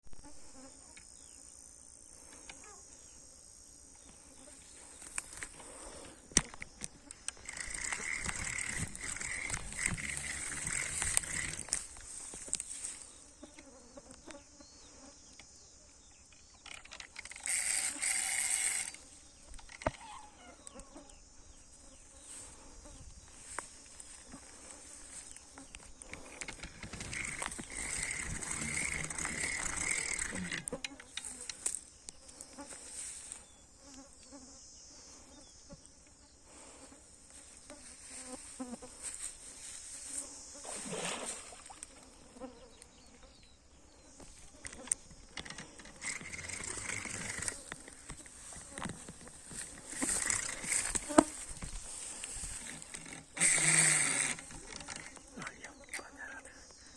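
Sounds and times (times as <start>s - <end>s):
sharp clicks: 5.0s - 12.7s, 25.6s - 32.2s, 44.6s - 51.8s.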